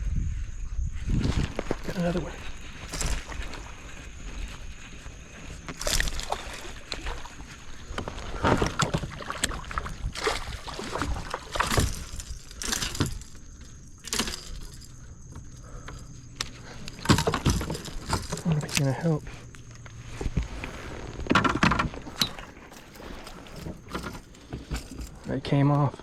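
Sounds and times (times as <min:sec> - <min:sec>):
handling noise: 0:01.2 - 0:25.6
water splashing: 0:05.7 - 0:14.7.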